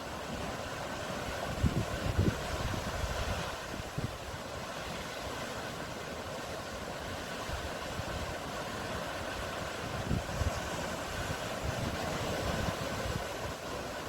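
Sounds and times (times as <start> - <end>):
surf and waves: 0.0 - 14.0
wind buffeting microphone: 1.3 - 4.4, 9.7 - 13.8.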